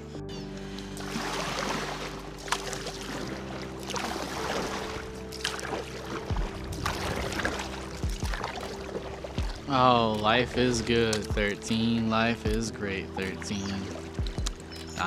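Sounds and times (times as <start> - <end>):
background music with held chords: 0.0 - 15.0
water splashing around a kayak: 0.7 - 15.0.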